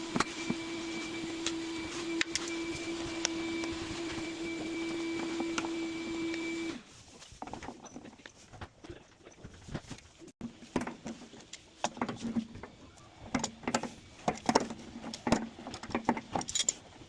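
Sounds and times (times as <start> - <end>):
clicks and clinks on metal parts: 15.7 - 16.9.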